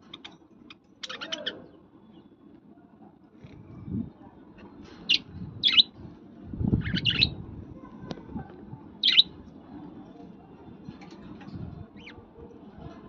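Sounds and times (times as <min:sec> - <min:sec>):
parrot chirping: 0:05.1 - 0:05.9, 0:09.0 - 0:09.3.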